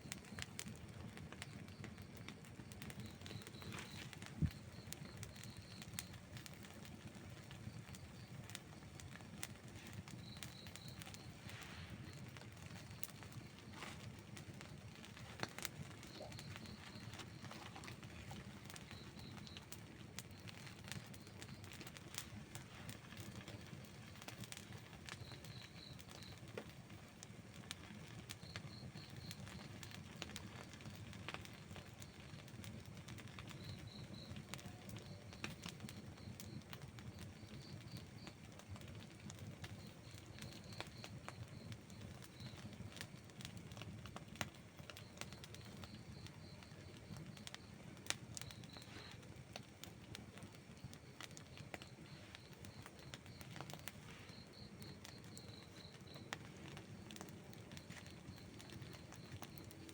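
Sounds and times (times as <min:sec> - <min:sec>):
campfire flames rushing: 0:00.0 - 0:59.9
fire crackling and popping: 0:00.0 - 0:59.9
faint high chirps: 0:01.4 - 0:06.8, 0:07.4 - 0:26.4, 0:50.7 - 0:59.9.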